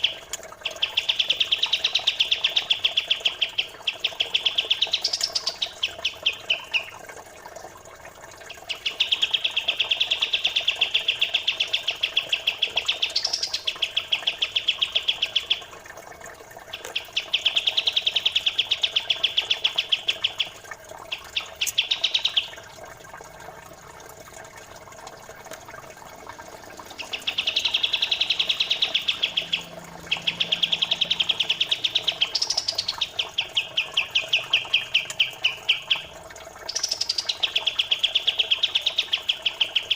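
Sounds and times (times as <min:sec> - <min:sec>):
songbird rattling trill: 0:00.0 - 0:06.9, 0:08.7 - 0:15.6, 0:16.7 - 0:22.5, 0:26.9 - 0:36.1, 0:36.7 - 0:39.9
water trickling: 0:00.0 - 0:39.9.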